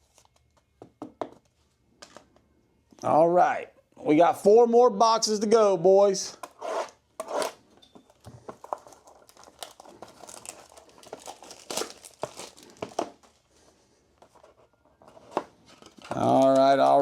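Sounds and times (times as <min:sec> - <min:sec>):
plastic wrapping crinkling: 0:08.1 - 0:13.5.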